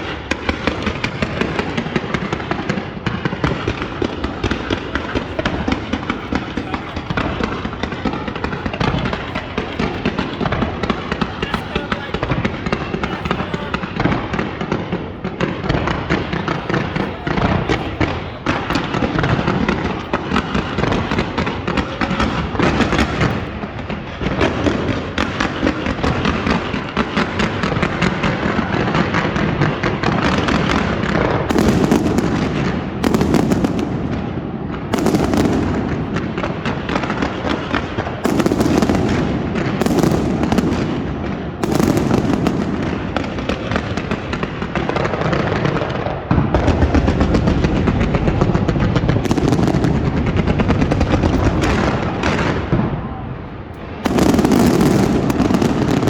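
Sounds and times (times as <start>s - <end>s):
fireworks crackling and popping: 0.0s - 56.0s
sharp firework bangs: 0.0s - 56.0s.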